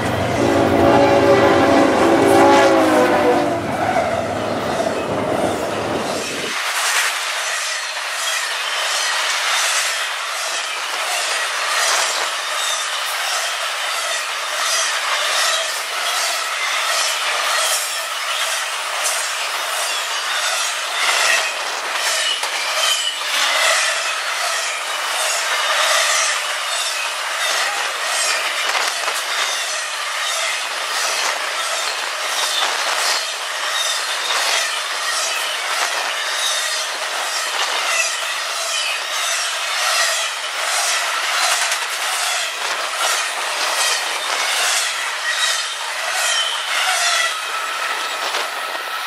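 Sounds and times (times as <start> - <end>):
high squealing tones: 0.1 - 6.5.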